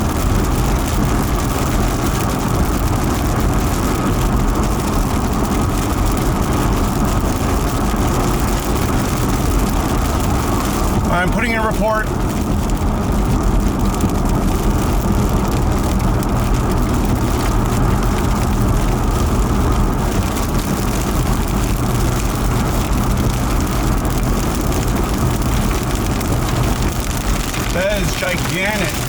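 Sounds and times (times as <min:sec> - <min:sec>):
low engine hum: 0:00.0 - 0:29.0
road and wind noise: 0:00.0 - 0:29.0.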